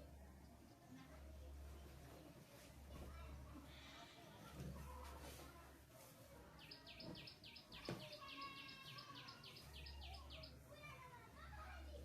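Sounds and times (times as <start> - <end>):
bird chirping: 6.6 - 10.6.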